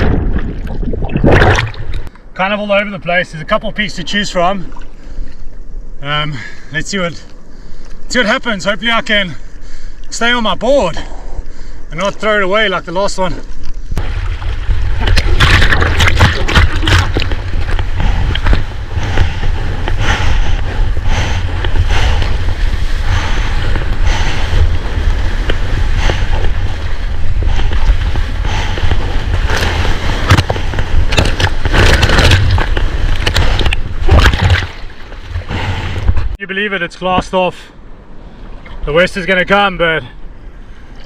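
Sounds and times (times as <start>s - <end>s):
water splashing at microphone: 0.0s - 2.1s, 14.0s - 19.4s, 21.1s - 35.6s
low rumble of water and wind: 0.0s - 41.0s.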